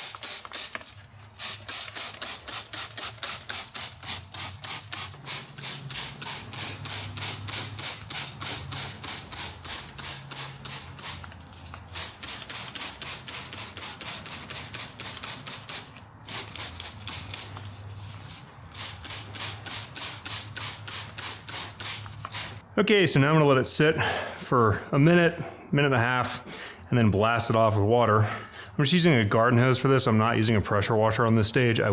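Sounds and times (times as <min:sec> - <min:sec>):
trigger spray bottle spraying: 0:00.0 - 0:22.6.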